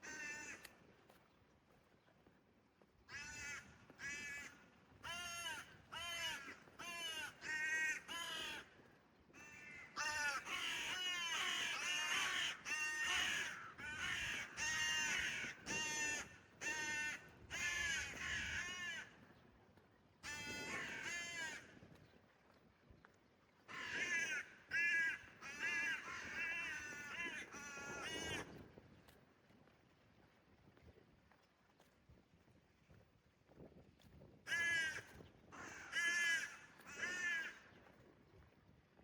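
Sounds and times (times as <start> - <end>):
crows cawing: 0.0 - 0.7, 3.1 - 8.7, 9.4 - 19.2, 20.3 - 21.7, 23.7 - 28.5, 34.5 - 37.7.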